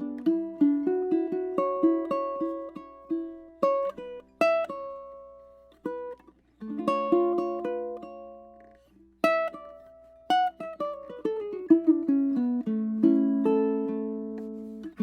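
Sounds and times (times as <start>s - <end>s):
fingerpicked ukulele: 0.0s - 15.0s.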